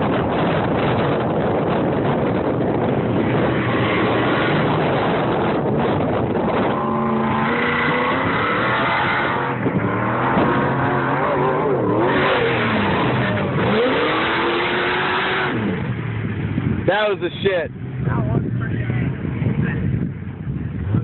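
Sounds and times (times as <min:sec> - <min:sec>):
truck engine revving: 0:00.0 - 0:16.7
loud wind rush: 0:00.0 - 0:21.0.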